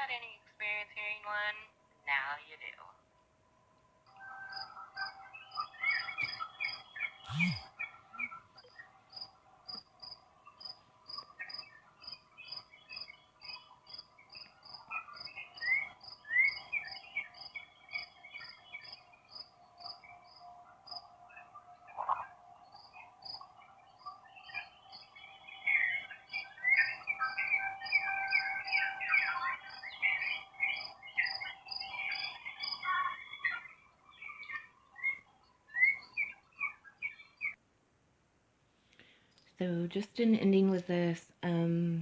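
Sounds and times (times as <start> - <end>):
birds chirping: 4.1 - 37.6
repeating high chirp: 5.6 - 8.3
distant warning siren: 19.0 - 34.1.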